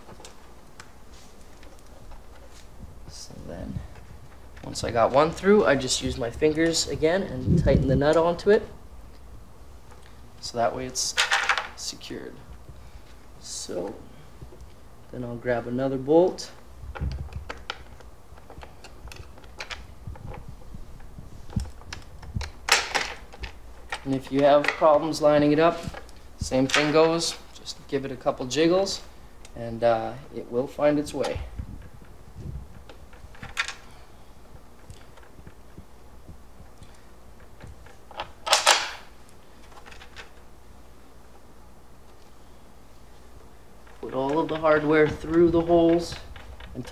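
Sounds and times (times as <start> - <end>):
bolts and nuts clicking and knocking: 21.5 - 27.4, 36.7 - 40.4, 43.8 - 46.9
metal hardware clattering: 37.6 - 40.4.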